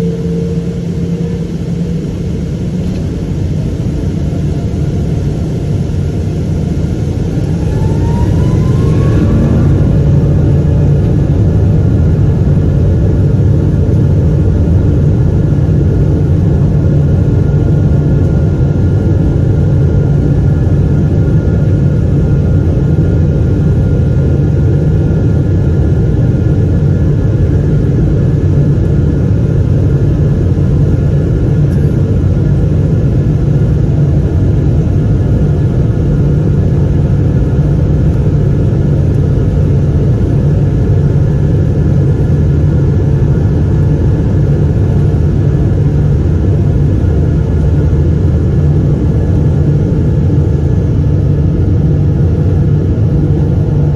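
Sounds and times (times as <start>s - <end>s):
jet engines spooling up: 0.0s - 14.0s.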